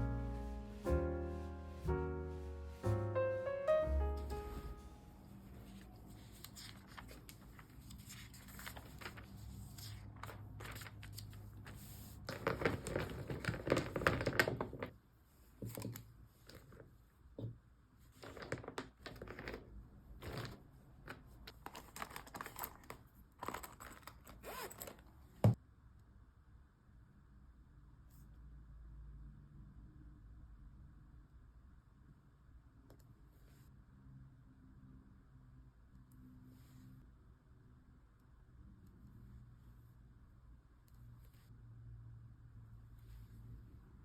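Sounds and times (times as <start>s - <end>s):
paper rustling and tearing: 5.7s - 14.4s, 20.2s - 24.9s.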